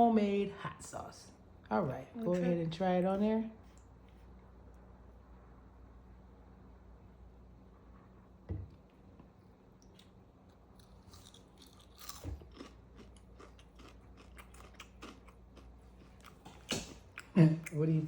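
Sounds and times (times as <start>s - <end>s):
soft knock: 8.5s - 8.8s
person chewing food: 9.2s - 17.8s.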